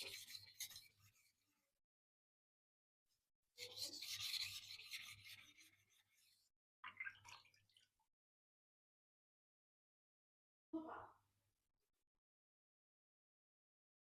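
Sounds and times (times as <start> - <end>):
knife on sharpening stone: 0.0 - 1.0, 3.6 - 6.1.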